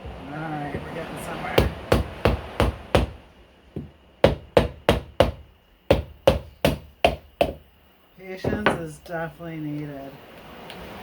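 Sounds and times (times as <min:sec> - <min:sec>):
hammer striking coconut shell: 0:01.6 - 0:03.2, 0:03.8 - 0:07.6.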